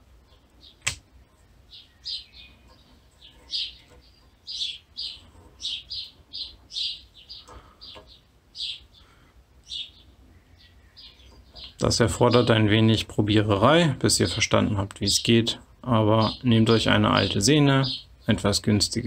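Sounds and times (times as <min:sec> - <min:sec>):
small bird chirping: 0:00.0 - 0:13.1, 0:16.1 - 0:18.8
sharp click: 0:00.8 - 0:01.1.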